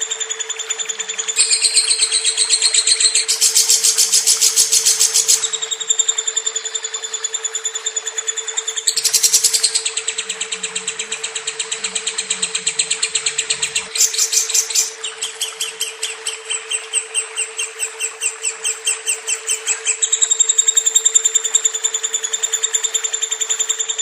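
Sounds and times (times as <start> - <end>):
steady low hum: 0.0 - 22.2
lovebird chirping: 0.8 - 6.0, 8.6 - 21.6.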